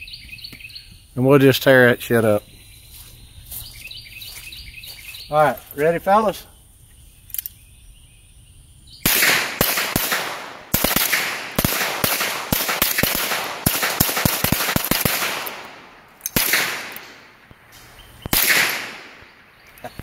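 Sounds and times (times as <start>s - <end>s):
rifle gunshots with echo: 9.0s - 19.6s.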